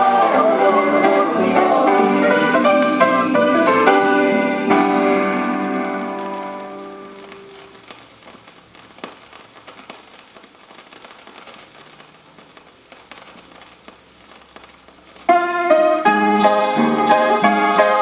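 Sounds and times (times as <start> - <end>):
loud keyboard chords: 0.0 - 7.4, 15.3 - 18.0
vinyl crackles and hiss: 0.0 - 18.0.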